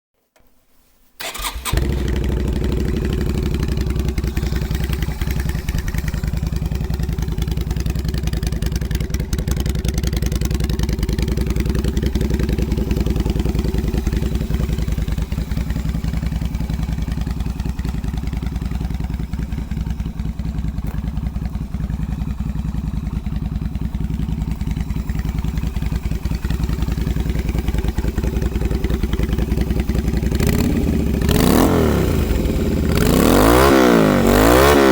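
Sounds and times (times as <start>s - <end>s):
motorcycle engine cranking: 1.2s - 12.4s
motorcycle engine idling: 1.2s - 34.9s.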